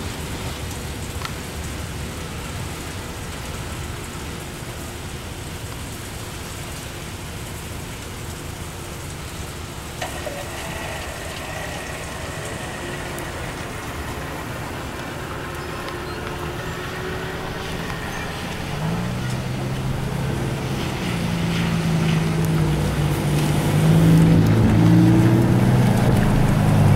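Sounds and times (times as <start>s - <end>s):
car engine hum: 8.2s - 26.9s
freight cars rolling: 9.3s - 26.9s.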